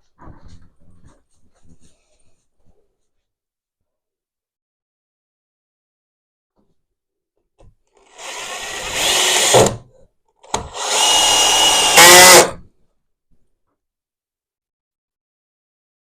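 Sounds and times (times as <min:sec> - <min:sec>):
drill click: 0:08.0 - 0:09.8, 0:10.4 - 0:12.6
power drill running: 0:08.0 - 0:09.8, 0:10.4 - 0:12.6.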